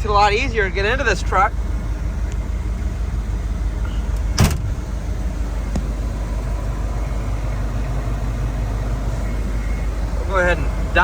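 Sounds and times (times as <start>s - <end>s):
diesel engine rumbling: 0.0s - 11.0s
sharp clunk: 3.9s - 4.8s.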